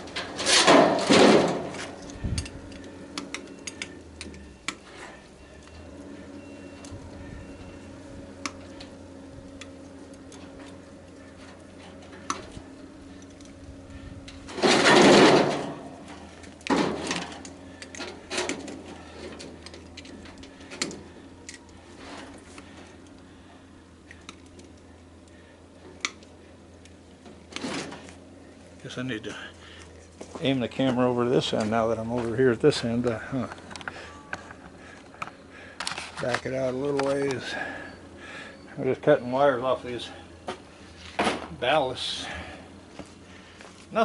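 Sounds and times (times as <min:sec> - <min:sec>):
loud clattering scrape: 0:00.0 - 0:02.0, 0:14.5 - 0:15.9
steady hum: 0:00.0 - 0:44.0.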